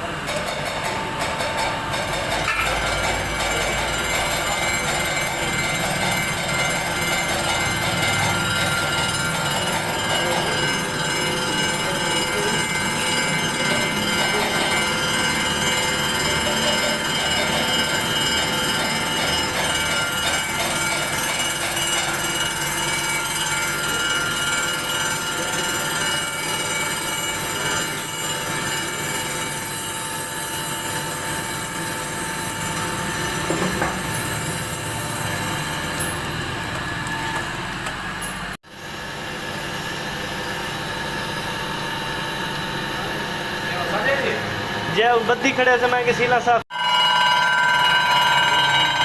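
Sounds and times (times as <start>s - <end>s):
grinding noise: 1.8s - 38.5s
polishing machine metallic whine: 1.8s - 49.0s.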